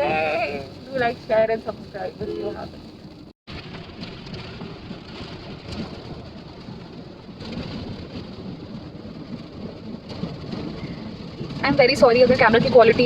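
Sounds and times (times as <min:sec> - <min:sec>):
road and engine noise in car: 0:00.0 - 0:13.0.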